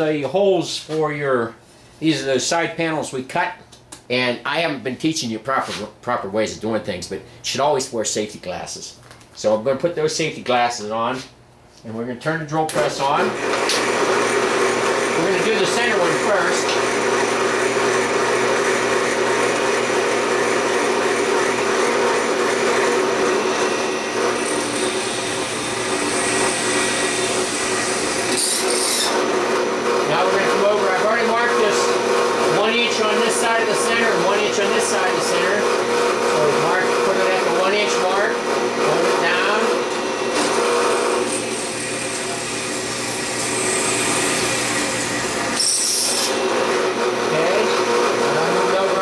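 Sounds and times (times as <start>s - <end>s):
drill press motor running: 13.1s - 49.0s
high hissing drilling through metal: 14.2s - 29.4s, 39.0s - 49.0s.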